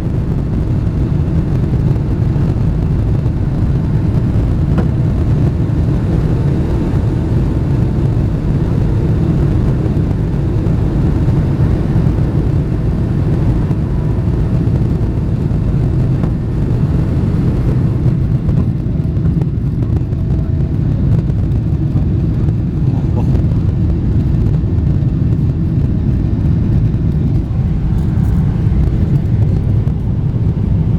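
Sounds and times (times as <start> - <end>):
jet engines low rumble: 0.0 - 30.9.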